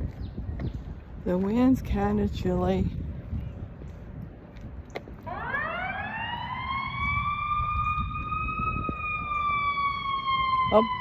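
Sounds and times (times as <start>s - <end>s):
wind rumble on microphone: 0.0s - 11.0s
siren wailing: 5.3s - 11.0s.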